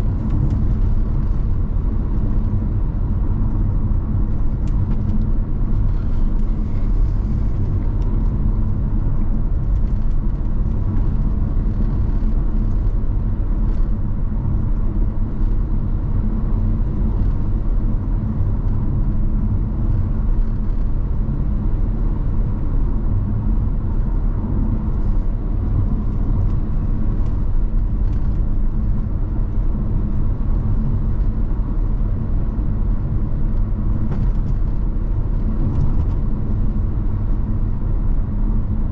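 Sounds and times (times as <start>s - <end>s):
car tyres and engine rumble: 0.0s - 38.9s.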